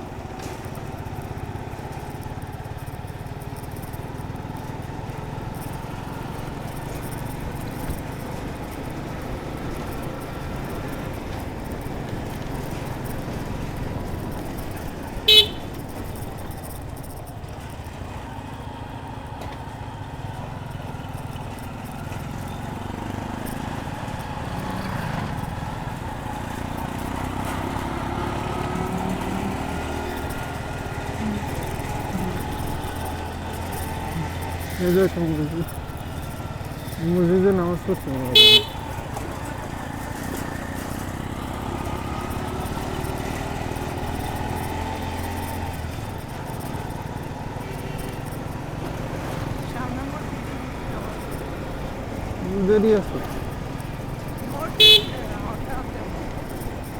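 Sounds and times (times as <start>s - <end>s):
motorcycle engine running: 0.0s - 56.9s
wind and road noise: 0.0s - 56.9s
horn toot: 15.1s - 16.0s, 26.4s - 35.3s, 38.0s - 39.3s, 54.6s - 55.7s.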